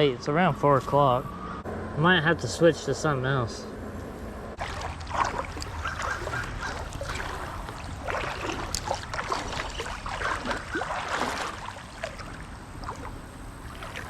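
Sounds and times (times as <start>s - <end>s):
steady water rush: 4.6s - 14.0s
water splashing and gurgling: 4.6s - 14.0s.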